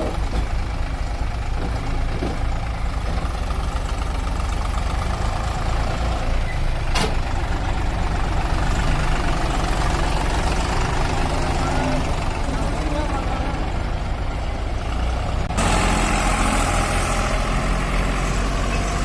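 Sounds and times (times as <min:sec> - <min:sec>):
heavy diesel engine rumbling: 0:00.0 - 0:19.0.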